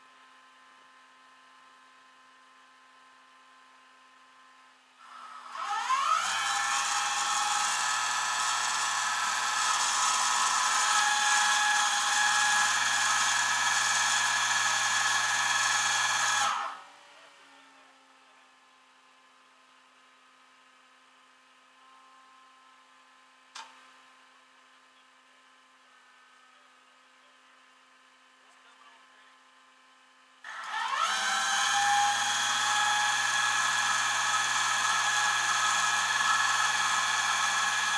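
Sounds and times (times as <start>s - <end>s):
small motor whirring: 5.0s - 18.2s, 30.4s - 37.9s.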